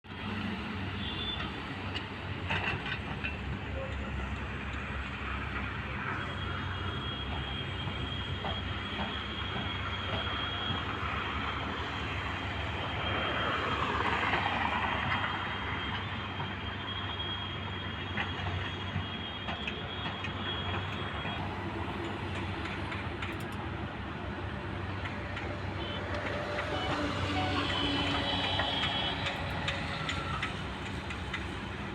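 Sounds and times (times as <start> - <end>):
excavator engine humming: 17.2 - 31.9.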